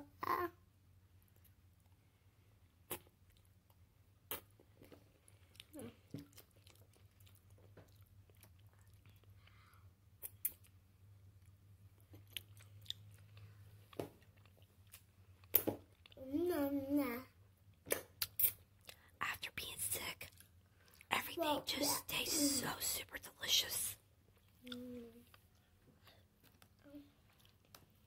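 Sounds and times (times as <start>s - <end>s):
person chewing food: 1.3s - 16.2s, 20.0s - 21.1s, 24.3s - 28.0s.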